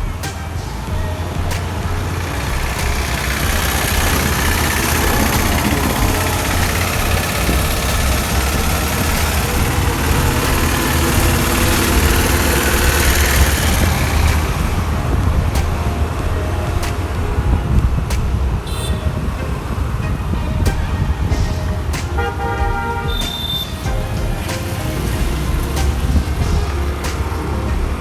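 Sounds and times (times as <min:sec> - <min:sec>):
scooter and traffic noise: 0:00.0 - 0:28.0.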